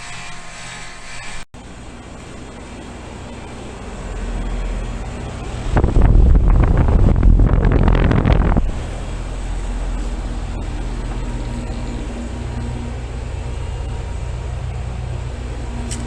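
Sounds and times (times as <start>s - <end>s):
heat pump hum: 0.0s - 16.0s
wind buffeting microphone: 5.4s - 9.9s.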